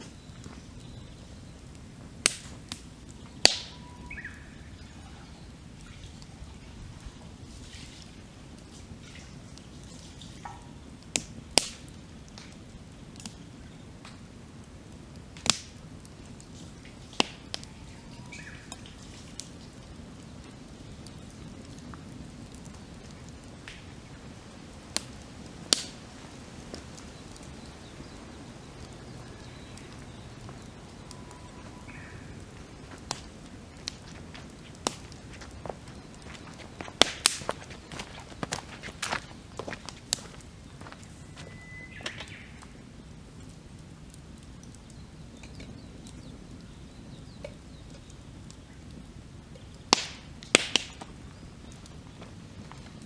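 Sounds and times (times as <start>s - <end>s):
campfire crackling and popping: 0.0s - 53.0s
faint bird calls: 3.4s - 6.7s, 17.4s - 18.9s, 27.0s - 33.7s, 41.0s - 42.8s.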